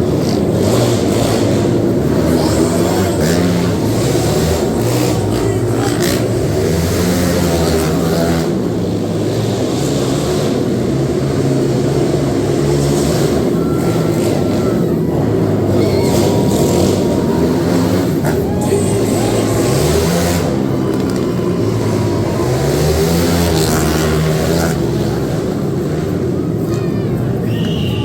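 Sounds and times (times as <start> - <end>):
quad engines revving: 0.0 - 28.0.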